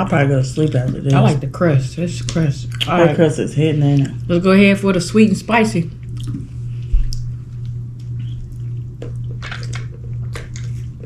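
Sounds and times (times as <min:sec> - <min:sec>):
steady low hum: 0:00.0 - 0:11.0
eating smacks and clicks: 0:06.0 - 0:11.0.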